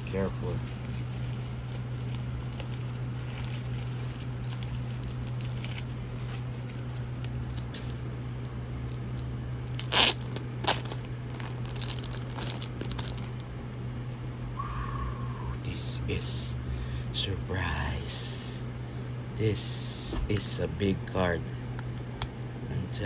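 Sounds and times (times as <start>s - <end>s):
packaging tearing and crinkling: 0.0s - 7.8s, 9.7s - 13.5s
steady low hum: 0.0s - 23.0s
loud paper rips: 9.7s - 13.4s.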